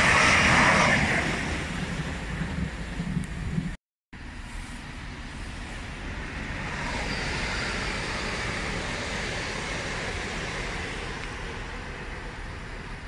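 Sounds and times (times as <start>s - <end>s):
train passing: 0.0s - 13.0s
wheel and rail noise: 0.0s - 13.0s
faint high whine: 4.2s - 13.0s.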